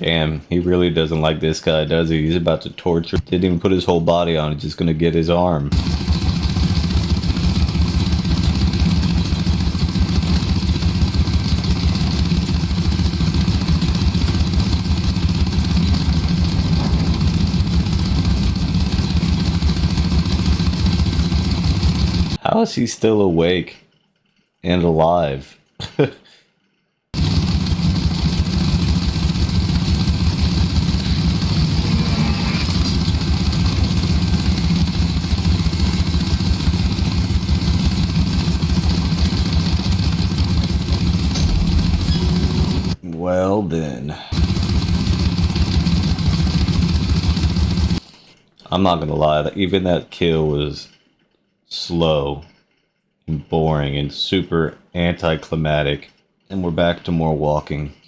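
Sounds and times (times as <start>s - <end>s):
small gasoline engine idling: 5.7s - 22.4s, 27.2s - 43.0s, 44.3s - 48.0s.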